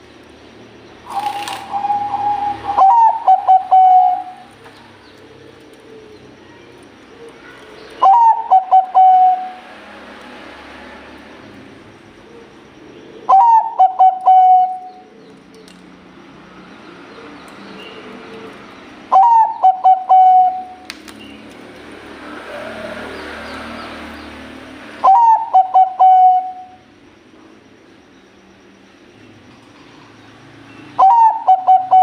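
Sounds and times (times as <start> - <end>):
dove cooing: 1.1 - 6.4, 7.1 - 9.6, 12.1 - 15.4, 17.1 - 20.8, 25.0 - 26.8, 31.0 - 32.0.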